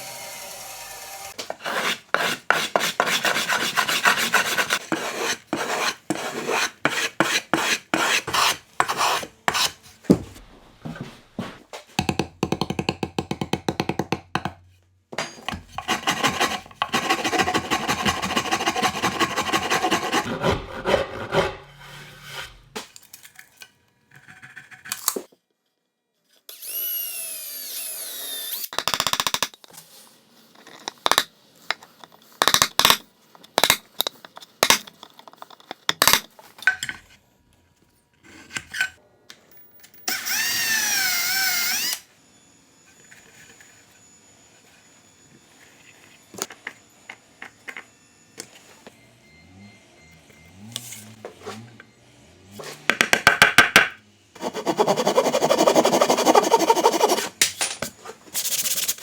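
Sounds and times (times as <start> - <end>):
rasping and filing wood: 1.4 - 9.8, 15.8 - 22.8, 54.4 - 57.4.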